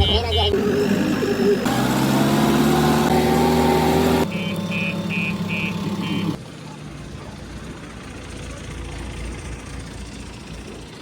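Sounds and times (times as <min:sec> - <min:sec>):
heavy machine engine running: 0:00.4 - 0:06.4
short electronic beeps: 0:04.2 - 0:06.4.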